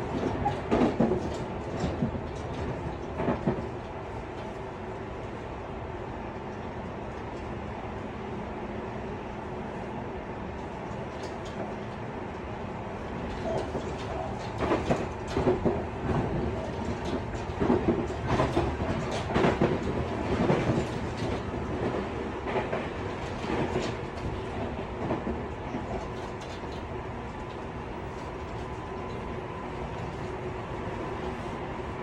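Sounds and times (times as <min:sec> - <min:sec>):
clattering knocks and clicks: 0:00.0 - 0:03.7, 0:13.2 - 0:29.3.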